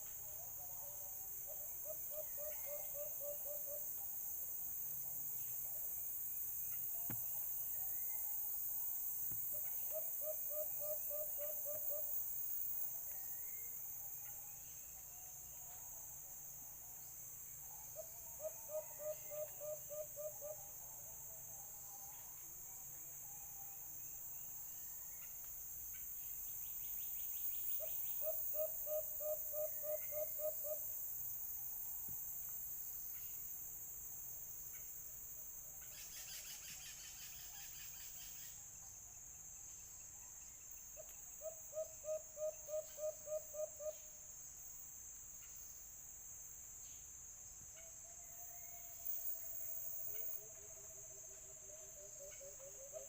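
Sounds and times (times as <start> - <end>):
high insect drone: 0.0 - 53.0
dove hooting: 1.5 - 3.8, 9.5 - 12.1, 18.0 - 20.7, 27.8 - 30.8.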